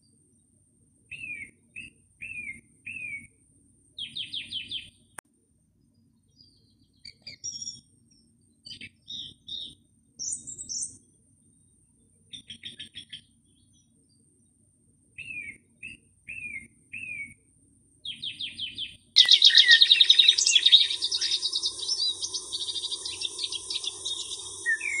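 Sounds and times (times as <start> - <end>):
songbirds chirping: 0.0 - 3.3, 3.9 - 5.2, 5.8 - 17.4, 18.0 - 25.0
chorus of chattering birds: 4.0 - 4.9, 6.3 - 11.0, 12.3 - 14.0, 18.0 - 25.0
insect drone: 19.2 - 25.0.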